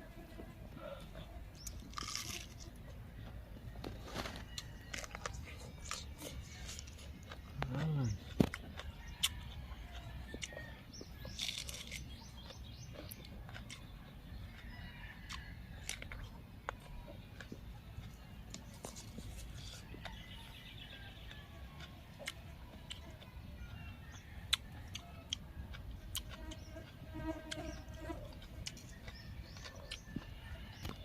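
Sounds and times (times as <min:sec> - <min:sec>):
birds chirping: 0:00.0 - 0:31.0
chewing raw vegetables: 0:00.0 - 0:31.0.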